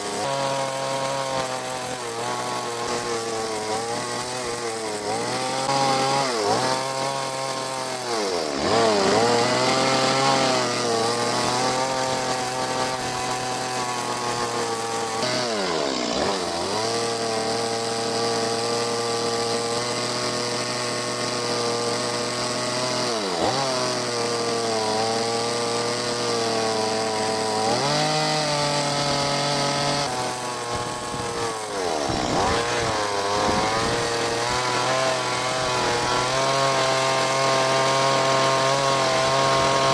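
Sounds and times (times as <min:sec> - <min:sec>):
chainsaw running at high revs: 0:00.0 - 0:39.9.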